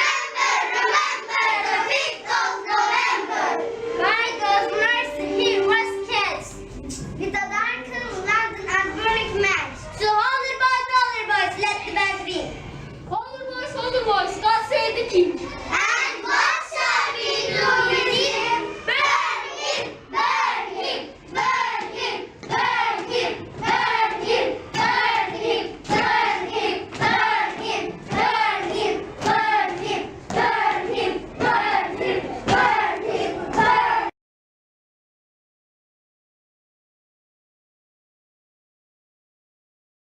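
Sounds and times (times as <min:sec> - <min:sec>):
children chanting: 0:00.0 - 0:06.6, 0:15.6 - 0:34.1.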